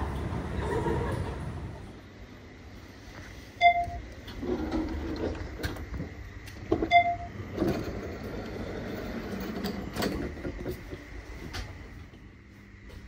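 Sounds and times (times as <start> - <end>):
vehicle ride rumble: 0.0 - 2.0.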